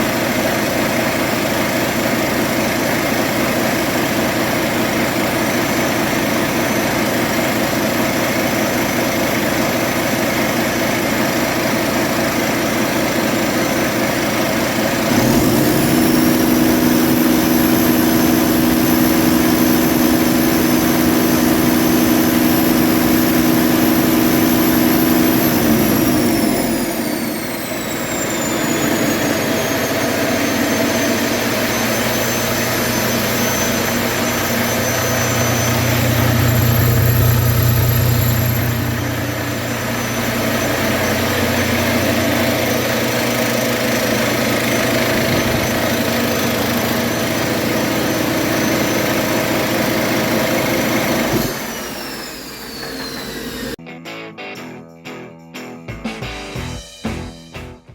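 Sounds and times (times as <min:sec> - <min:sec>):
diesel engine idling: 0:00.0 - 0:52.0
turbo whine: 0:13.2 - 0:53.8.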